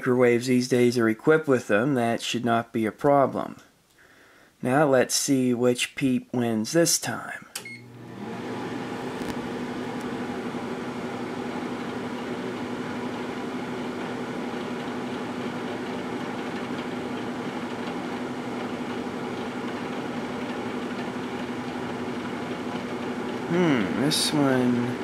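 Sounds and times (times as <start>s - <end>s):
microwave oven humming: 7.6s - 25.0s.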